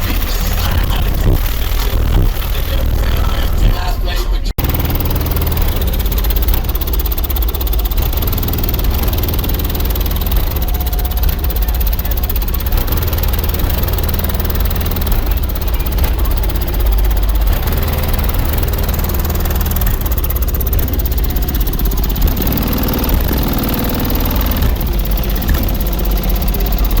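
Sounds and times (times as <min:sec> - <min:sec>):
deep bass music from subwoofers: 0:00.0 - 0:27.0.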